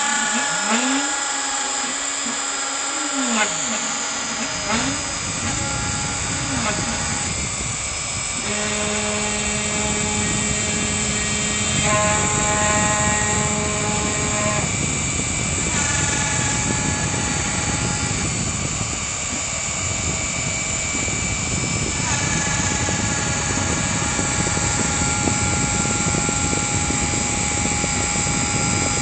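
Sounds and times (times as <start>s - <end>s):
router spindle whine: 0.0s - 29.0s
stepper motor tones: 0.0s - 29.0s.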